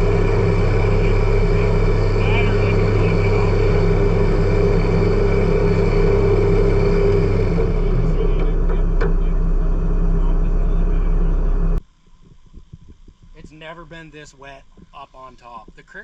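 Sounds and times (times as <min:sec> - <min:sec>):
vehicle engine running: 0:00.0 - 0:11.8.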